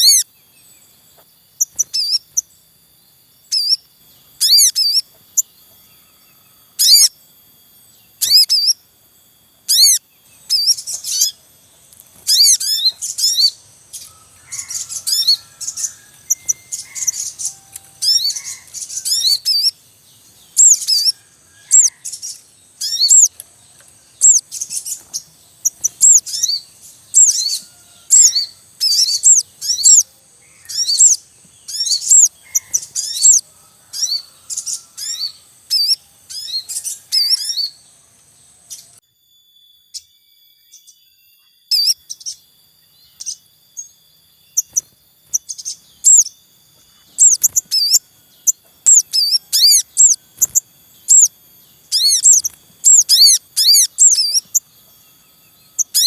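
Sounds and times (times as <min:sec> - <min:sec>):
birds chirping in chorus: 0:00.0 - 0:39.0, 0:39.8 - 0:56.0.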